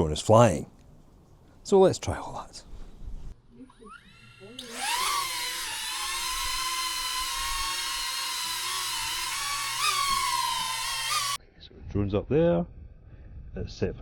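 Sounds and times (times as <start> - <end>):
drone propellers whining: 3.7 - 11.4.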